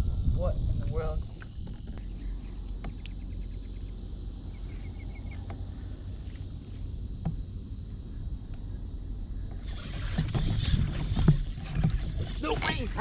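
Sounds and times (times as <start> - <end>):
faint insect trill: 0.0 - 13.0
wind rumble on microphone: 0.0 - 13.0
loud hissing rush: 9.7 - 13.0.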